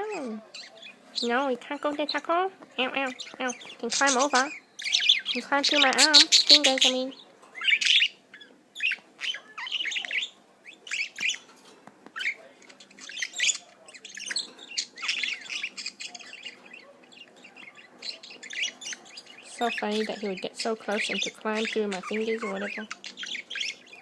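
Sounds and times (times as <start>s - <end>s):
budgerigar chirping and squawking: 0.0s - 24.0s.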